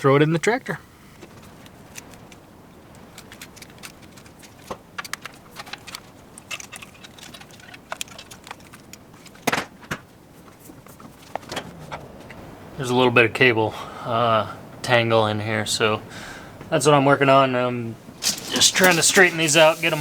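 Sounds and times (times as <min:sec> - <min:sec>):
equipment clicks and rattles: 0:01.2 - 0:12.0, 0:18.2 - 0:20.0.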